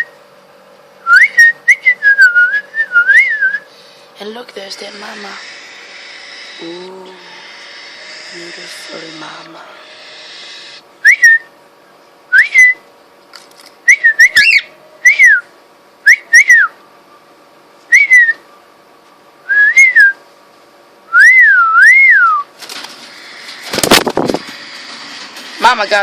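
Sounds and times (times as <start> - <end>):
cockatiel whistling: 13.9 - 15.4.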